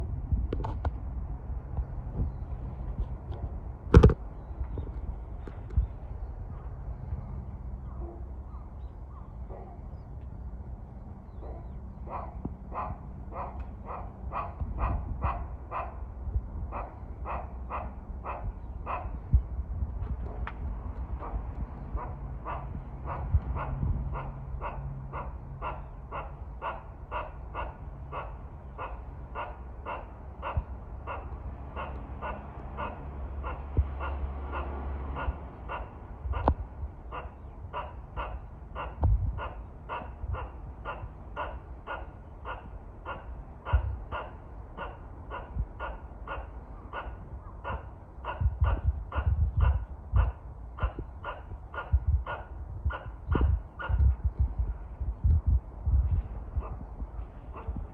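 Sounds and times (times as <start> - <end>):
squirrel barking calls: 11.2 - 19.4, 21.2 - 54.7.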